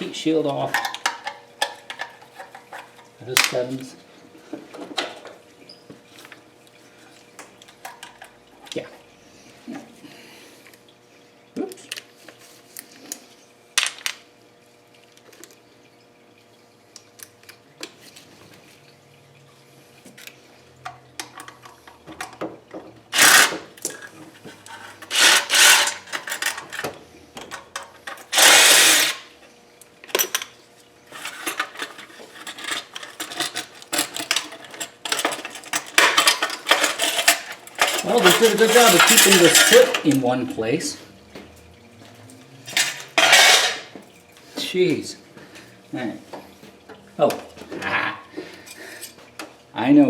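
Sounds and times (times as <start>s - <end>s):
power tool bursts: 23.2s - 23.7s, 25.0s - 26.2s, 28.3s - 29.3s
metallic clicking and rattling: 31.2s - 40.2s.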